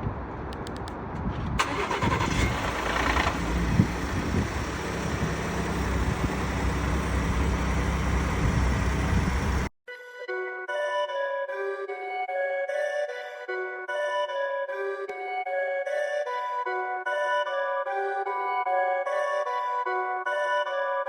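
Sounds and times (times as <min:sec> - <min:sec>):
car engine starting and idling: 0:01.6 - 0:09.7
engine rattle: 0:01.6 - 0:09.7
music: 0:09.9 - 0:21.0.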